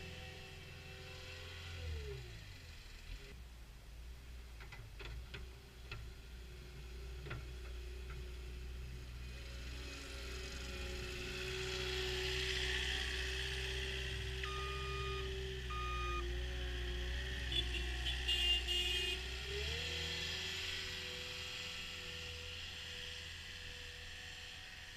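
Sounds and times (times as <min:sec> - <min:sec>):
skid steer loader engine hum: 0:00.0 - 0:03.3, 0:05.0 - 0:24.9
short high beeps: 0:14.4 - 0:16.2
electronic beeps: 0:14.4 - 0:16.3.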